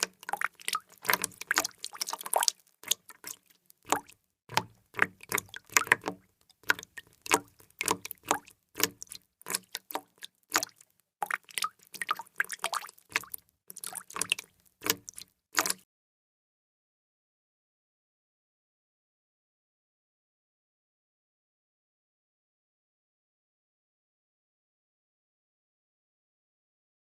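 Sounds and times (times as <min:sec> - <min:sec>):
water drops splashing: 0:00.0 - 0:15.8.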